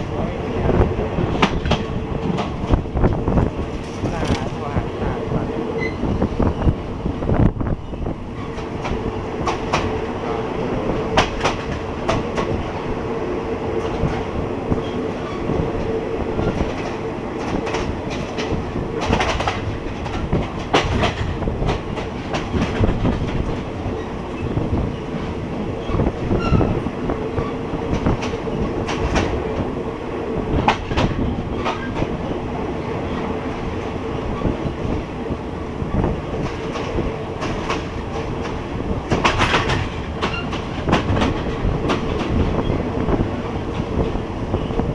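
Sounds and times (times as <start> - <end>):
train rumble and hum: 0.0 - 44.9
train wheels clacking on rail joints: 0.9 - 4.6, 7.8 - 12.9, 13.8 - 29.7, 30.5 - 32.4, 35.9 - 44.9.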